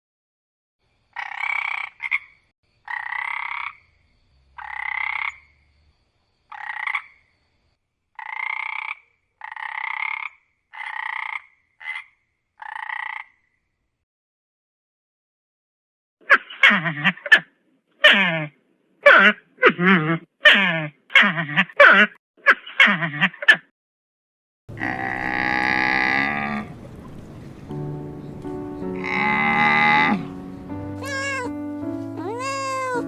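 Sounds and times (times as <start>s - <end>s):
animal calling: 28.2s - 33.0s.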